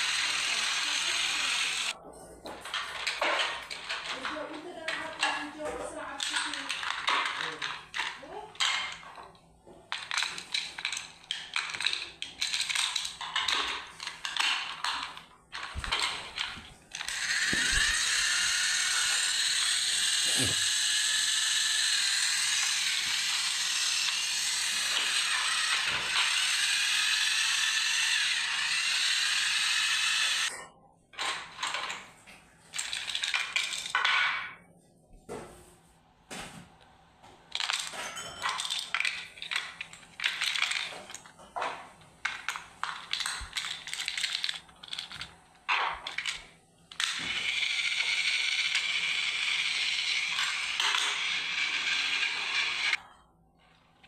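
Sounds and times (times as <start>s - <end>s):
toy train motor whirring: 0.0s - 2.0s, 2.7s - 9.2s, 9.9s - 30.6s, 32.7s - 34.1s, 37.5s - 41.3s, 42.2s - 53.0s
plastic clicking and rattling: 2.5s - 18.0s, 37.5s - 49.2s.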